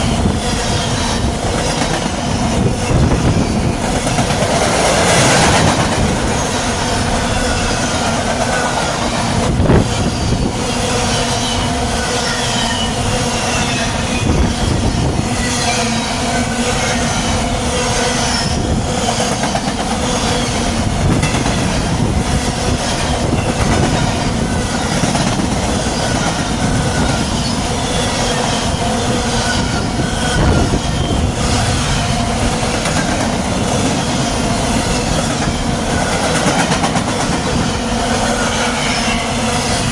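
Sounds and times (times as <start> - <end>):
freight train rumbling past: 0.0 - 39.9
wheel squeal: 4.9 - 21.8, 22.4 - 39.9
wheels clicking over rail joints: 18.2 - 39.9.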